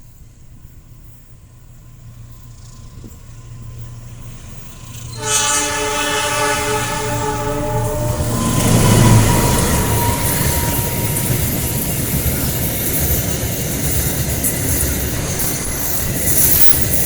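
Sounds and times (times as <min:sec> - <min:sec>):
locomotive engine drone: 0:00.2 - 0:17.0
train horn blasting: 0:05.1 - 0:12.6.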